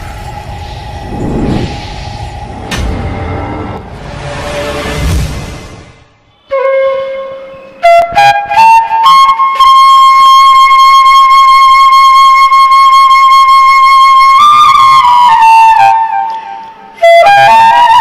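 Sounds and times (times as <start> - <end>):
flute-like wind instrument: 6.2 - 18.0.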